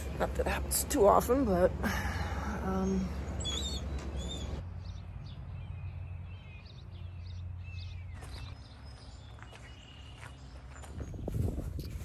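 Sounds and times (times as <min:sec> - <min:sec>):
birds whistling and chirping: 0:02.8 - 0:12.0.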